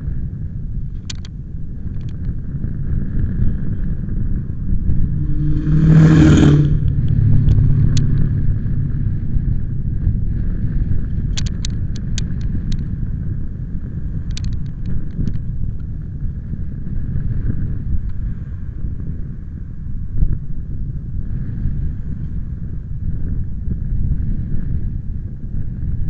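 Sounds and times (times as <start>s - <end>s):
wind buffeting microphone: 0.0s - 26.0s
low hum: 0.8s - 17.3s
sharp clicks: 1.0s - 1.3s, 11.3s - 12.9s, 14.3s - 15.4s.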